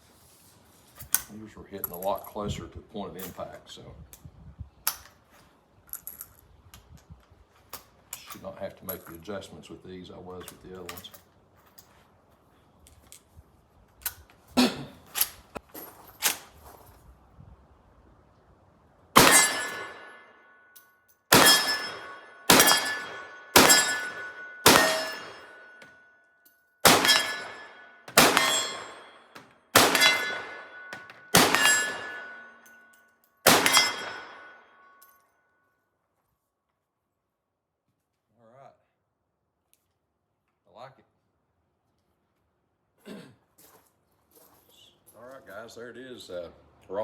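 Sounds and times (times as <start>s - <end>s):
rifle shots: 19.2s - 20.2s, 21.3s - 25.8s, 26.8s - 32.5s, 33.4s - 34.6s
steel plates ringing: 19.2s - 20.4s, 21.3s - 25.9s, 26.8s - 34.8s.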